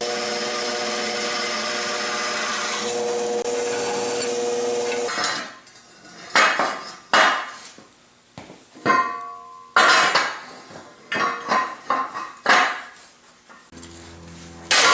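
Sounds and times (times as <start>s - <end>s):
power tool running on steel: 0.0s - 5.4s, 13.7s - 14.9s
steel pieces clanking: 2.2s - 3.0s, 14.7s - 14.9s.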